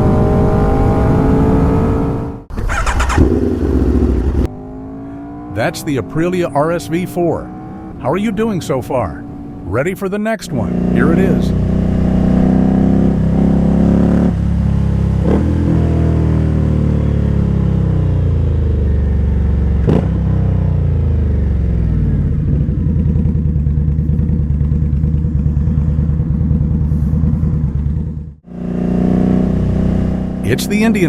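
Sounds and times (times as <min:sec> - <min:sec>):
sharp engine cracks: 0:02.5 - 0:03.4
motorcycle engine idling: 0:02.5 - 0:04.5, 0:20.7 - 0:28.4.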